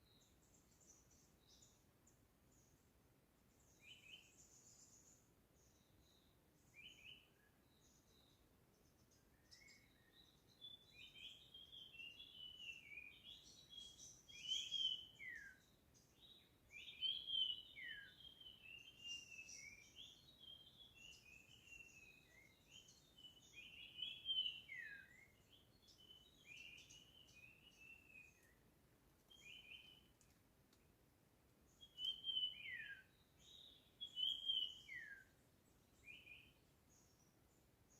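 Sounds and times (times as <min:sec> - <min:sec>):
faint background hiss: 0:00.0 - 0:37.9
songbird chirping: 0:00.0 - 0:37.9.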